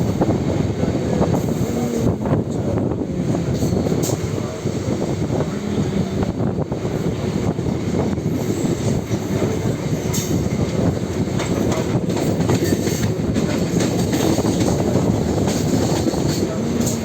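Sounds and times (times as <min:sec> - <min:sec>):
train rumble: 0:00.0 - 0:17.0
wheels clicking over rail joints: 0:09.4 - 0:17.0.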